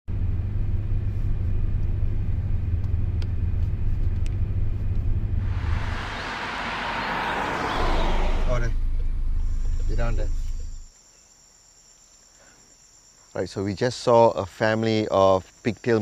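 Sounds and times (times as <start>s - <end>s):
car engine rumbling: 3.6s - 10.9s.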